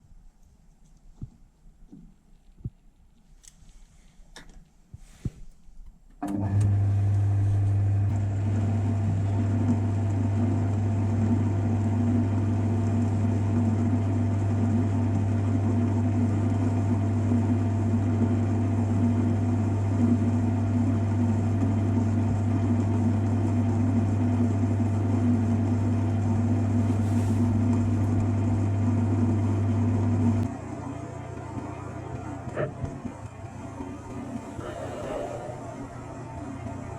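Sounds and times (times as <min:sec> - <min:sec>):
lathe motor humming: 0:06.2 - 0:08.7.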